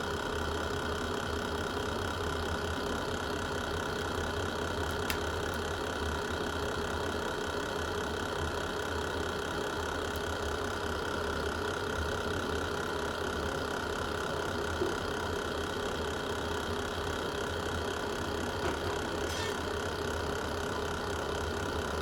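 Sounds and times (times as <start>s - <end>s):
fireplace fire roaring: 0.2s - 21.8s
fire crackle: 4.0s - 5.9s.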